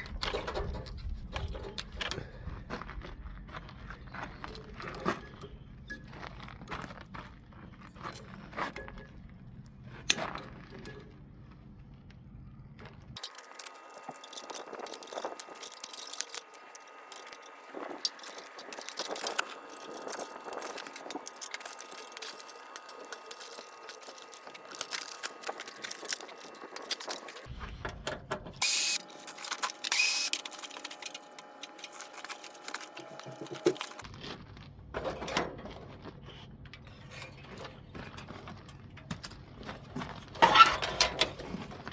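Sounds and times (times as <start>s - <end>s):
metal tools clinking and scraping: 13.2s - 34.0s, 36.7s - 41.9s.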